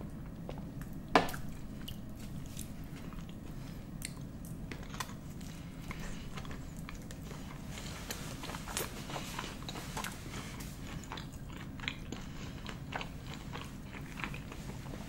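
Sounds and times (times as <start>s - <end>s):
steady low hum: 0.0s - 15.0s
person chewing food: 0.2s - 15.0s.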